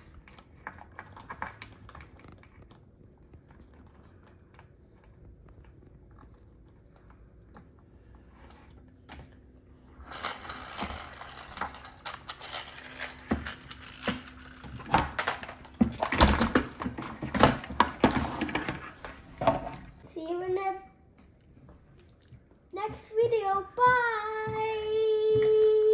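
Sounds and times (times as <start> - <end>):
plastic toys knocking together: 10.1 - 19.9.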